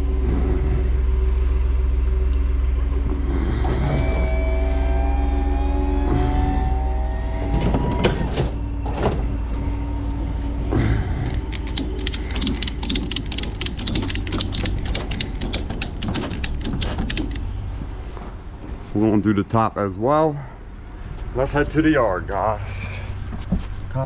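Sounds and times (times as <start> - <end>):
rising whine: 0.0 - 14.3
steady low rumble: 0.0 - 24.0
ratchet strap clicking: 11.4 - 17.4.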